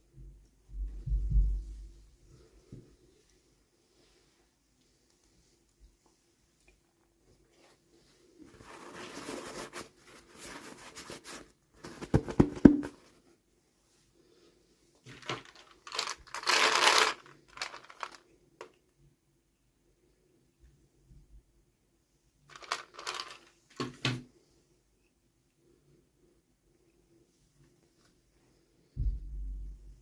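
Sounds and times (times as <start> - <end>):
wrapping crinkling and tearing: 15.2 - 18.2, 22.5 - 23.6.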